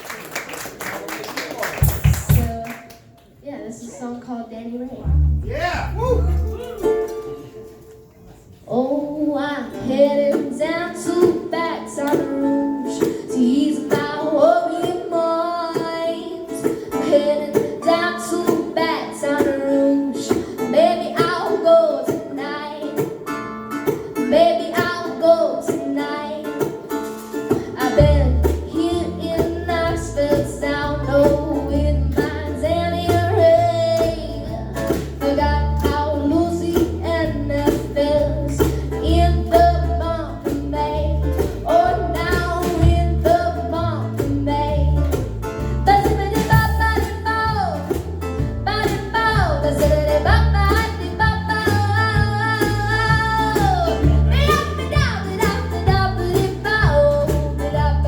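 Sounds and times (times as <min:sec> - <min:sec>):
acoustic guitar: 0:01.8 - 0:58.0
low bass line: 0:05.0 - 0:07.1
girl singing: 0:08.7 - 0:58.0.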